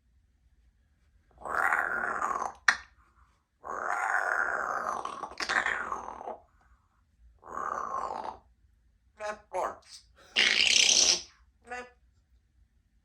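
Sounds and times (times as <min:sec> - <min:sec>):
parrot growling: 0:01.3 - 0:02.9, 0:03.6 - 0:06.5, 0:07.4 - 0:08.5, 0:09.2 - 0:11.9.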